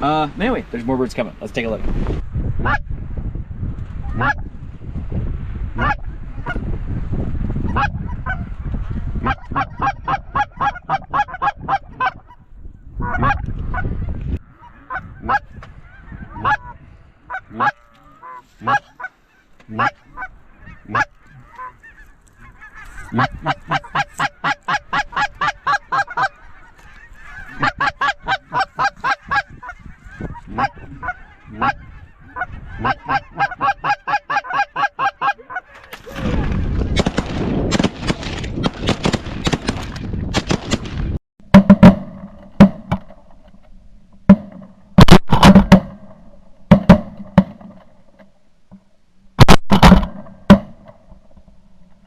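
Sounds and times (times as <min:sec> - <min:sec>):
goose clucking calls: 0:04.0 - 0:04.5, 0:05.8 - 0:06.6, 0:09.2 - 0:36.0
shotgun blasts: 0:36.9 - 0:41.1.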